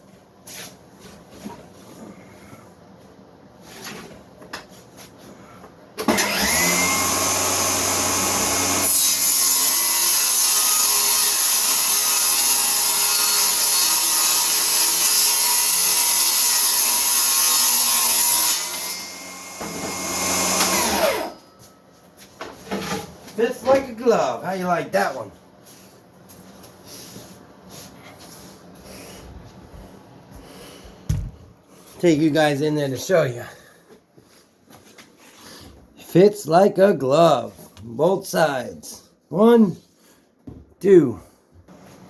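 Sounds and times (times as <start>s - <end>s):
electric power saw running: 6.1s - 9.0s, 18.6s - 21.4s.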